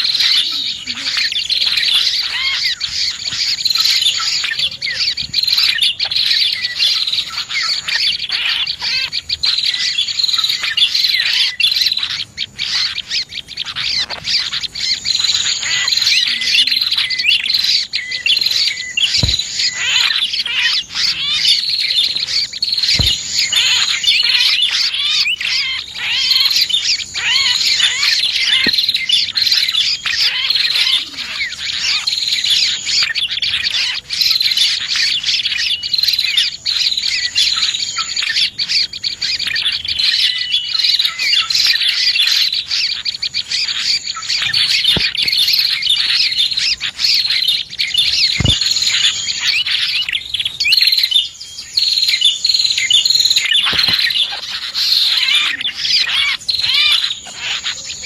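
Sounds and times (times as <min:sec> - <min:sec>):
songbirds chirping and twittering: 0:00.0 - 0:58.0
sharp clicks: 0:19.1 - 0:19.8, 0:53.6 - 0:54.2.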